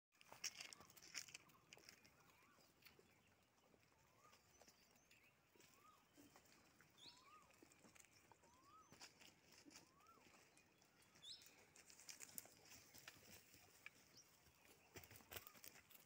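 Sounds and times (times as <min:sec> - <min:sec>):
soft clicks and crackles: 0:00.2 - 0:02.1
high bird chirps: 0:04.0 - 0:11.7
whistled bird call: 0:08.4 - 0:10.5.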